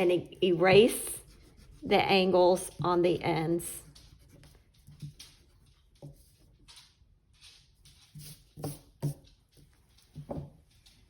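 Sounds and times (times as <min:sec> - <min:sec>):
pencil and eraser on paper: 0:00.0 - 0:06.4, 0:08.0 - 0:09.4.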